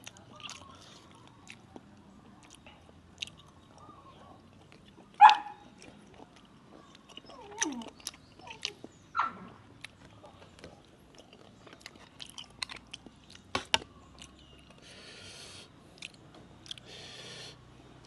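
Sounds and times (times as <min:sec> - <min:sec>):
chewing and crunching: 0:00.0 - 0:17.2
dog yelping: 0:05.1 - 0:05.7, 0:07.3 - 0:09.5.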